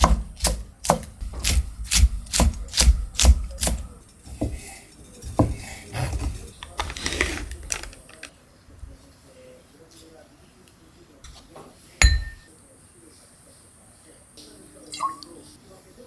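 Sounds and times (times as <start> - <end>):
knife chopping on cutting board: 0.0 - 4.6, 5.3 - 6.4.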